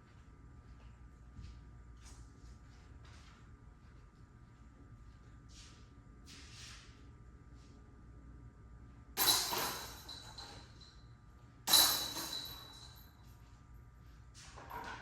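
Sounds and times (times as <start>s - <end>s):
disc striking basket chains: 9.2s - 11.0s, 11.7s - 13.2s
chains jangling and ringing: 9.2s - 11.1s, 11.7s - 13.3s.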